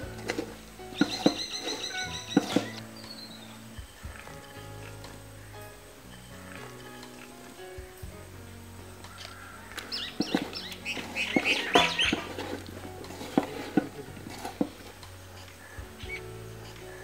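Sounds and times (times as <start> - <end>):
hand mixing food in metal pot: 0.0 - 2.9, 9.8 - 15.5
small birds chirping: 0.0 - 8.1, 8.9 - 13.0, 13.8 - 17.0
faint background music: 0.0 - 17.0.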